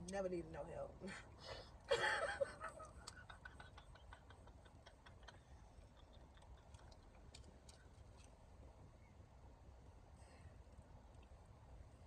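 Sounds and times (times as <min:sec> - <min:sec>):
person eating clicks and smacks: 0:02.8 - 0:08.3.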